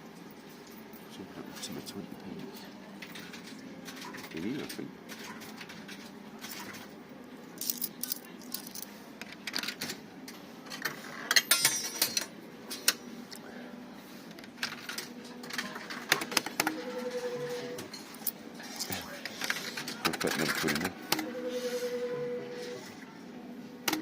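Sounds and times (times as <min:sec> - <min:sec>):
coins clicking into machine: 0:03.0 - 0:06.9, 0:07.6 - 0:10.0, 0:10.7 - 0:13.0, 0:19.4 - 0:21.0.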